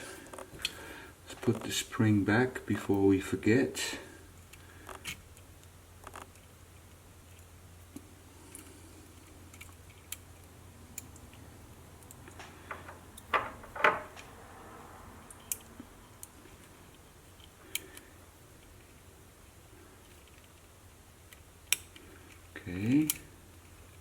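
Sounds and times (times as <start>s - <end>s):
faint steady hum: 0.0s - 24.0s
small tools and plastic parts clicking: 4.4s - 11.4s, 20.0s - 24.0s.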